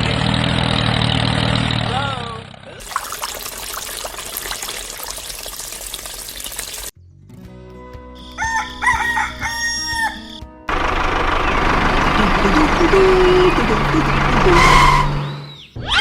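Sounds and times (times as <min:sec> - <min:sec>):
rooster crowing: 0:08.3 - 0:10.4.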